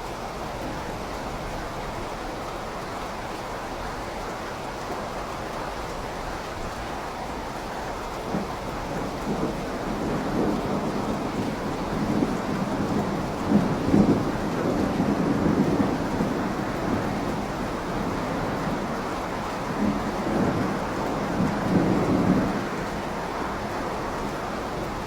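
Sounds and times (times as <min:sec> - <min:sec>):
steady rain falling: 0:00.0 - 0:25.0
thunder rumbling: 0:08.2 - 0:25.0.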